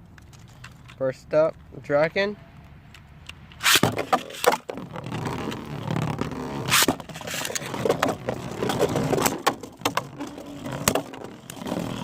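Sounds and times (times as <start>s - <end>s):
spinning tops whirring and scraping: 3.6s - 4.5s, 6.2s - 9.2s.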